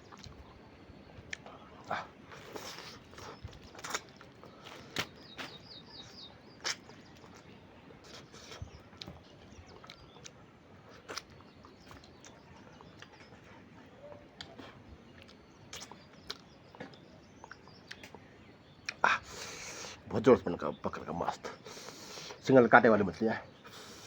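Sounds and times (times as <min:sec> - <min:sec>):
chewing and mouth smacks: 0:00.0 - 0:00.6, 0:01.3 - 0:18.2.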